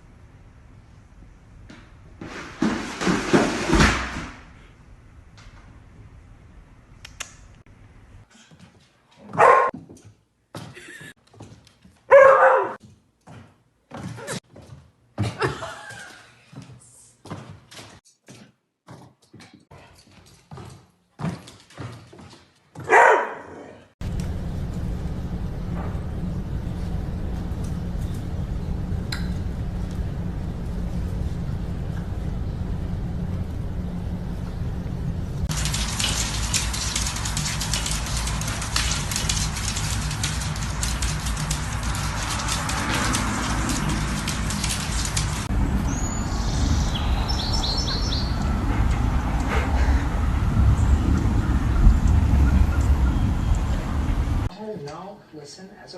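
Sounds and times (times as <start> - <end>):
dog barking: 9.3 - 9.8, 12.1 - 12.8, 22.8 - 23.8
low rumble: 24.0 - 54.5
steady low hum: 24.0 - 54.5
bird chirping: 45.7 - 48.5.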